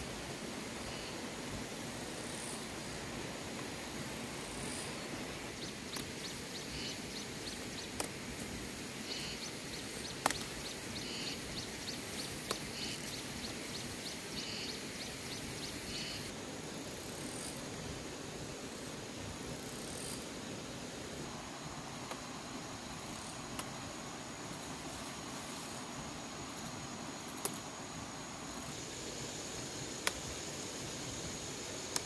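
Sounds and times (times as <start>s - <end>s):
high insect hum: 0.0s - 32.0s
birds chirping: 9.0s - 16.3s.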